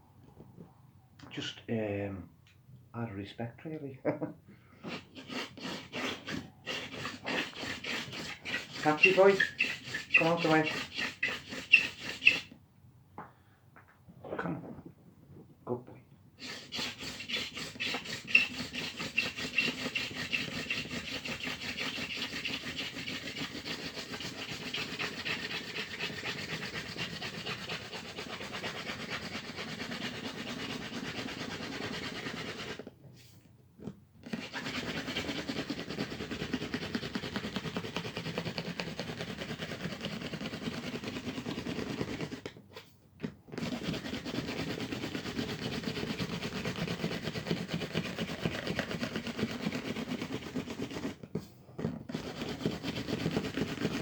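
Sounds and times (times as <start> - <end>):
dry rasping friction of spindle: 4.8 - 12.6, 16.4 - 32.9, 34.2 - 42.3, 43.5 - 51.2, 51.8 - 54.0.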